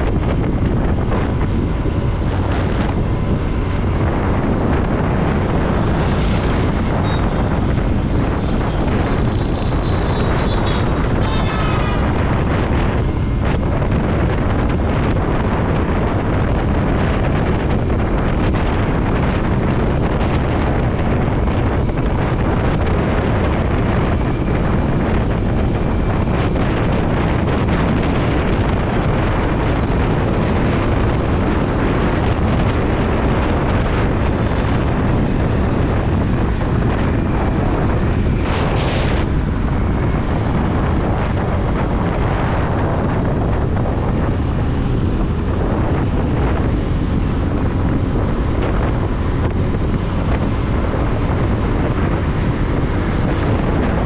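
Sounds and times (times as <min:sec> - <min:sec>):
motorcycle engine: 0:00.0 - 0:54.0
road noise: 0:00.0 - 0:54.0
wind rushing over microphone: 0:00.0 - 0:54.0.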